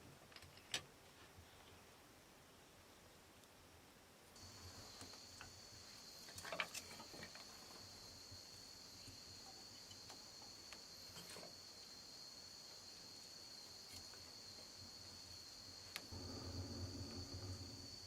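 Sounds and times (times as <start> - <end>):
insects droning: 4.4 - 18.0.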